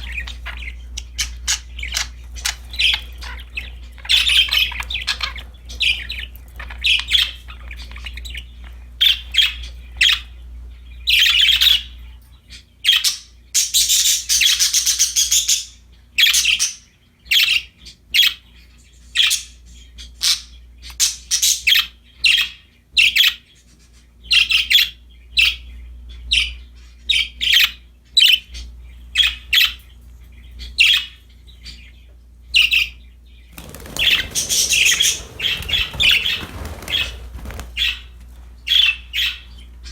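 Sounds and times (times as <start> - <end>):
budgerigars chirping: 0.0 - 39.9
noisy rustling: 33.5 - 38.9.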